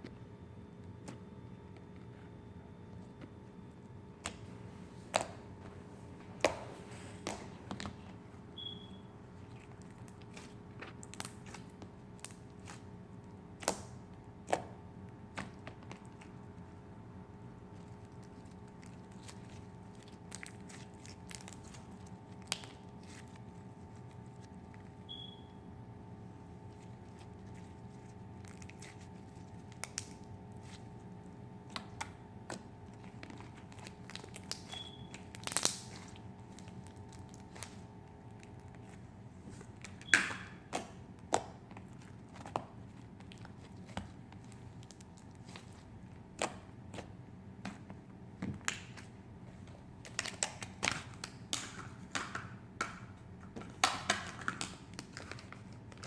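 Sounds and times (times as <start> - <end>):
slime popping and crackling: 9.3 - 12.9, 17.6 - 25.3, 27.0 - 31.0, 31.6 - 38.9.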